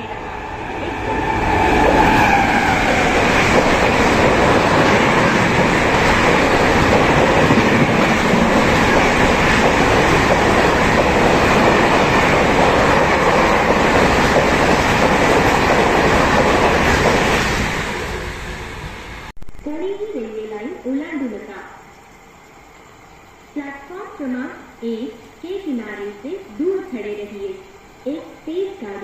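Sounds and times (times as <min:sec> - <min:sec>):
train passing at speed: 0:00.0 - 0:19.3.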